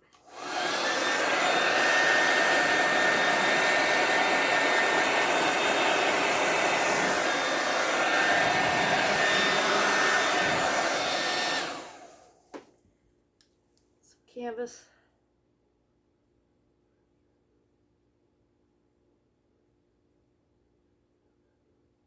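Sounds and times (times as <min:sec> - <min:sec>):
hair dryer blowing: 0:00.1 - 0:12.7.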